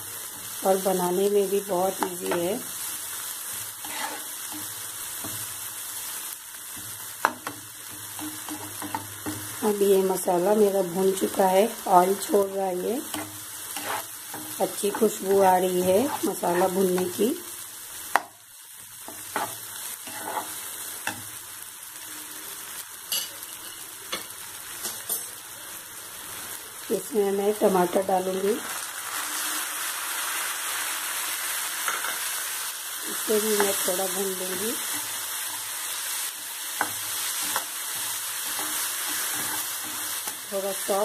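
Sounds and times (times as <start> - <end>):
onions sizzling in oil: 0.0 - 41.0
spatula stirring and scraping: 1.9 - 5.5, 6.7 - 9.6, 13.0 - 17.2, 19.0 - 21.2, 34.7 - 40.5.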